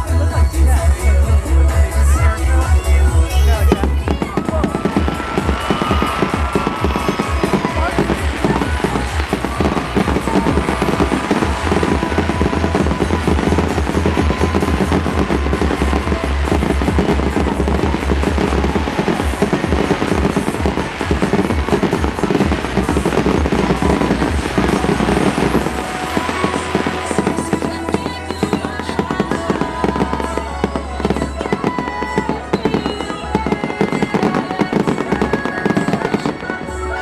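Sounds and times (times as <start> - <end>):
fireworks bangs and crackles: 0.0 - 37.0
low rumble: 2.4 - 27.9.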